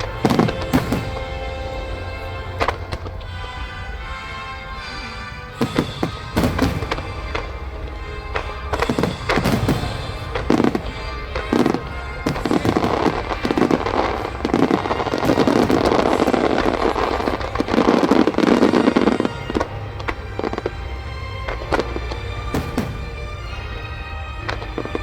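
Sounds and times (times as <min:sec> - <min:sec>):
fireworks bursting and crackling: 0:00.0 - 0:03.5, 0:05.5 - 0:25.0
music: 0:00.0 - 0:25.0.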